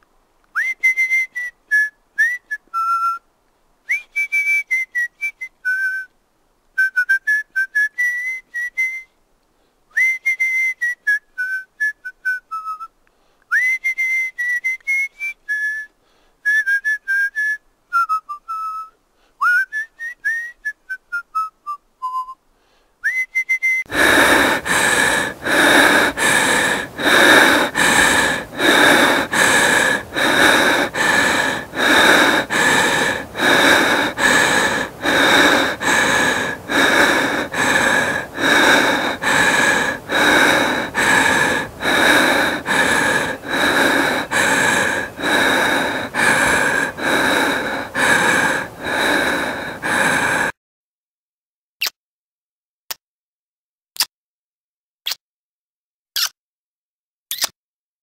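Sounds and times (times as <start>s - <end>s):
person whistling: 0.6s - 3.2s, 3.9s - 6.1s, 6.8s - 9.2s, 9.9s - 12.9s, 13.5s - 22.4s, 23.0s - 49.6s
rhythmic breathy rasp: 23.9s - 50.5s.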